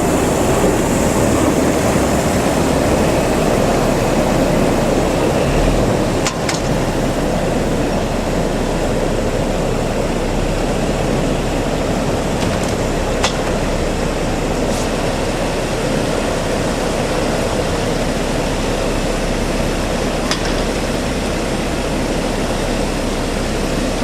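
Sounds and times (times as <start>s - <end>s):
heavy road equipment engine rumble: 0.0s - 24.0s.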